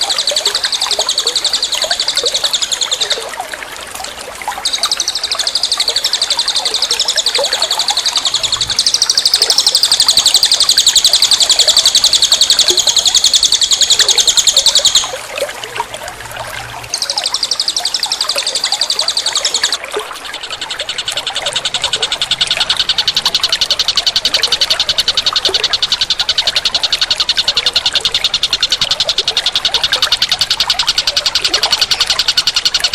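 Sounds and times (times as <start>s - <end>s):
bird buzzing trill: 4.7s - 15.2s.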